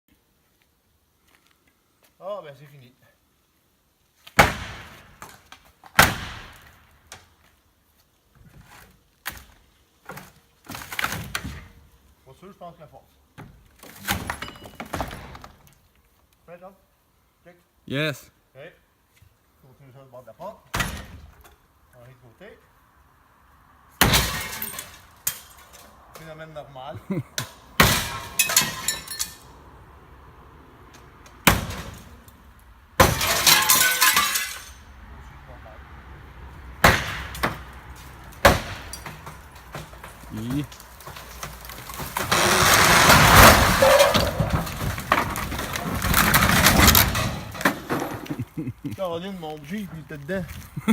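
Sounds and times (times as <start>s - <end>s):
debris clattering: 24.0s - 26.3s, 27.1s - 29.5s, 33.0s - 34.9s, 36.9s - 48.9s
heavy demolition impacts: 38.3s - 48.5s.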